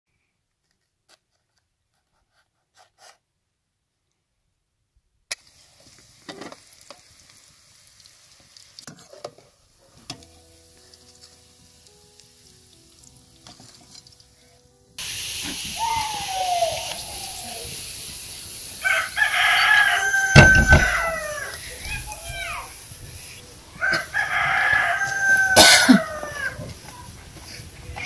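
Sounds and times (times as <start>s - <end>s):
potatoes sizzling in hot oil: 5.3s - 25.6s.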